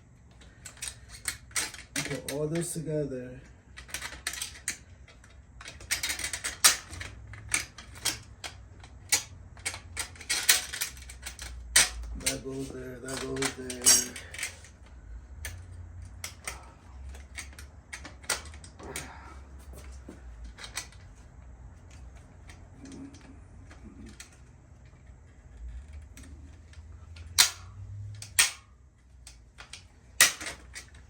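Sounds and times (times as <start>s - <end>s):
metal parts clicking and clinking: 0.4s - 2.8s, 3.8s - 19.2s, 20.4s - 21.1s, 21.9s - 31.0s.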